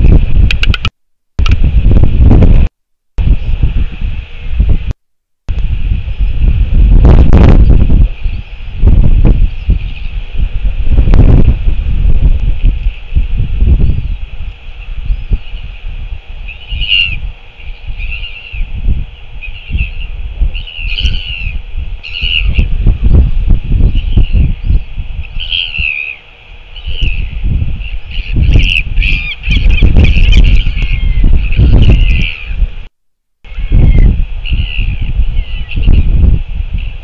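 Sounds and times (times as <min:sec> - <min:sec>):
wind buffeting microphone: 0:00.0 - 0:37.0
short bird calls: 0:16.4 - 0:18.7, 0:19.4 - 0:22.7, 0:23.9 - 0:32.6.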